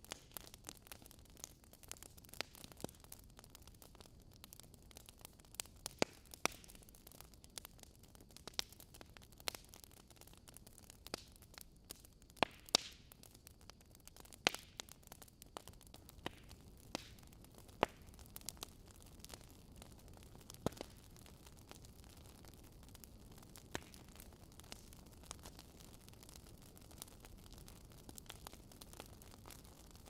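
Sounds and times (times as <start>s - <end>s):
logs crackling in fireplace: 0.0s - 30.0s.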